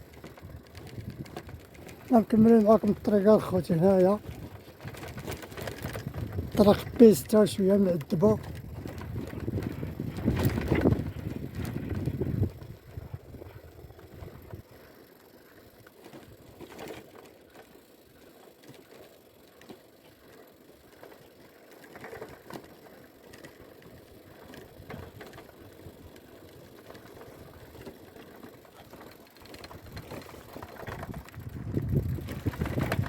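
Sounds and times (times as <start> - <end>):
bicycle rattling and clicking: 0.0 - 33.0
wind on microphone: 4.2 - 7.0, 8.3 - 14.6, 30.8 - 33.0.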